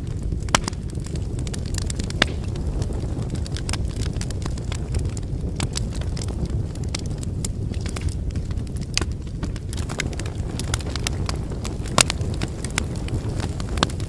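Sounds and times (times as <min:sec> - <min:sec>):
flames rushing: 0:00.0 - 0:14.0
wood crackling and popping: 0:00.0 - 0:14.0.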